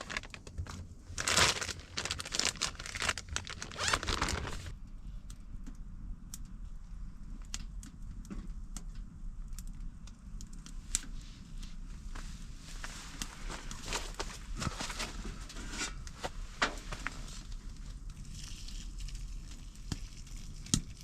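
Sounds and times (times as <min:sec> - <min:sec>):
rustling and crinkling handling: 0:00.0 - 0:04.7, 0:10.9 - 0:20.2.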